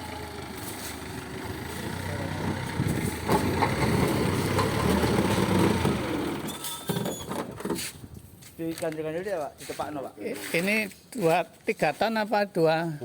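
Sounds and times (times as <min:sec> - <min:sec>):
vehicle engine revving: 0:00.0 - 0:06.5.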